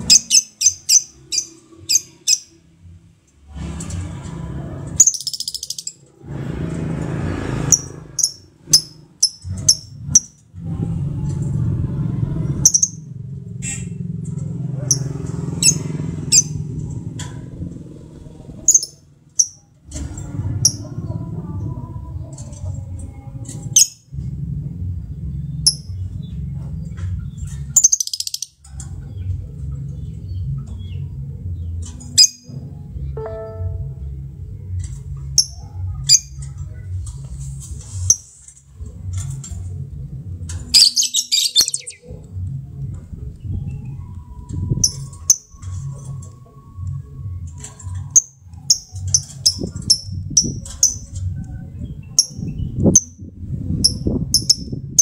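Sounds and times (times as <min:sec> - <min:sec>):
lovebirds chirping and chattering: 0:00.0 - 0:02.6, 0:18.6 - 0:19.7, 0:25.2 - 0:32.4, 0:40.8 - 0:42.3, 0:47.6 - 0:54.8
low rumble: 0:06.0 - 0:08.8, 0:09.5 - 0:19.0, 0:19.9 - 0:27.8, 0:32.4 - 0:35.4
low pulsing rumble: 0:09.5 - 0:14.8, 0:20.0 - 0:27.8, 0:49.6 - 0:55.0
lovebirds chirping: 0:40.8 - 0:42.1.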